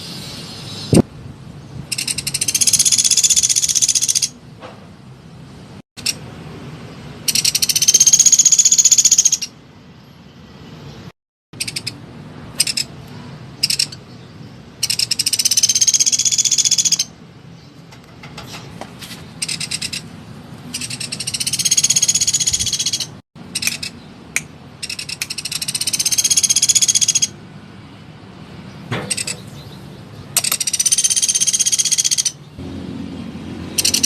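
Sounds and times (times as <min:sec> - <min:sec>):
woodpecker rattling trills: 0:01.9 - 0:04.3, 0:07.3 - 0:09.5, 0:12.6 - 0:12.9, 0:14.8 - 0:17.1, 0:19.4 - 0:20.0, 0:20.7 - 0:24.0, 0:24.8 - 0:27.3, 0:29.1 - 0:29.5, 0:30.4 - 0:32.4, 0:33.8 - 0:34.0
woodpecker sharp call notes: 0:07.3 - 0:09.5, 0:11.6 - 0:12.0, 0:12.6 - 0:12.9, 0:14.8 - 0:17.1, 0:20.8 - 0:24.0, 0:24.8 - 0:27.3, 0:30.4 - 0:32.4, 0:33.8 - 0:34.0.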